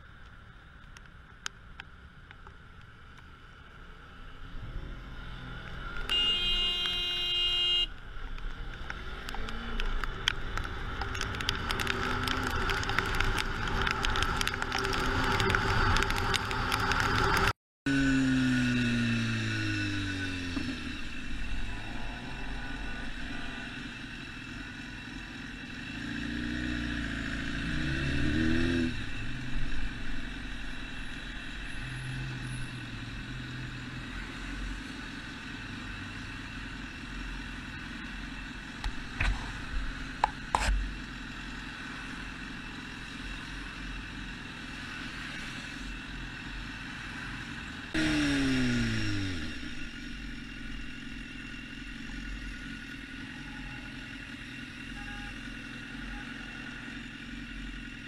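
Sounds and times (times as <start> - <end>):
road noise: 0.0 - 58.0
vehicle engine: 0.0 - 58.0.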